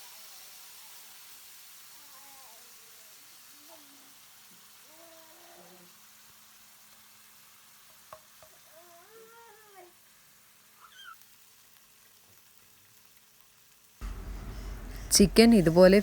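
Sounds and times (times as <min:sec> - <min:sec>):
chicken frying in oil: 0:00.0 - 0:08.8, 0:10.0 - 0:16.0
loud sizzling: 0:14.0 - 0:16.0.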